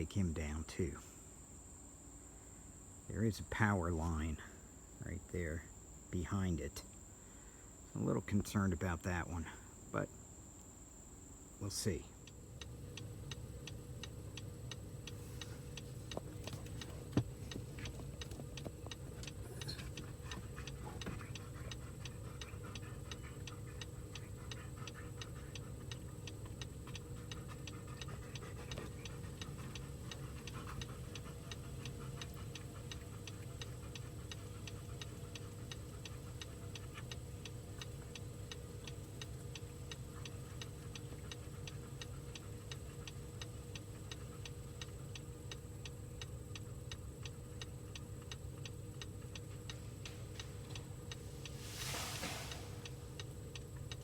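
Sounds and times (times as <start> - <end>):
insects droning: 0.0 - 54.0
even ticking: 11.9 - 54.0.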